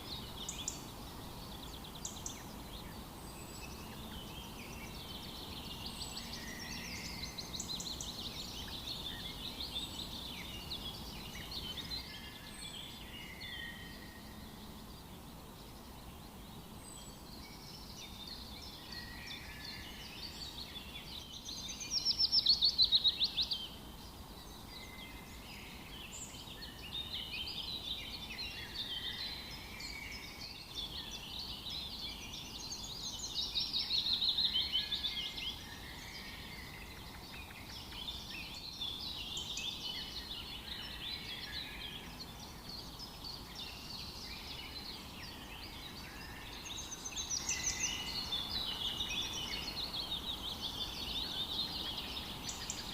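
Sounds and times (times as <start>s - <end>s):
songbirds chirping and trilling: 0.0s - 52.9s.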